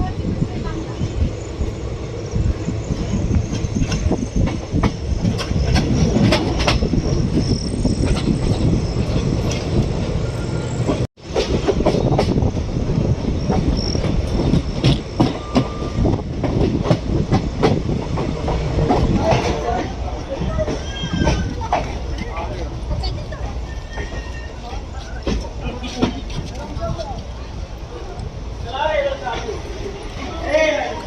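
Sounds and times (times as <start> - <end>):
train wheels rumbling: 0.0 - 31.0
faint wheel squeal: 20.2 - 21.7, 23.0 - 25.3.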